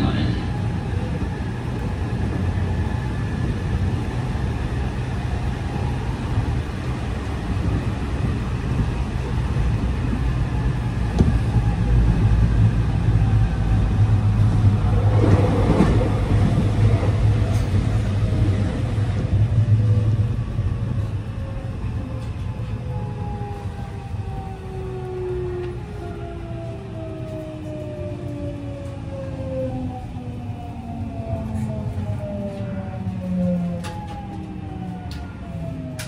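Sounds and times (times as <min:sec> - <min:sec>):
passing train: 0:00.0 - 0:36.0
train wheels rumbling on rails: 0:00.0 - 0:36.0
train clatter: 0:14.0 - 0:19.4.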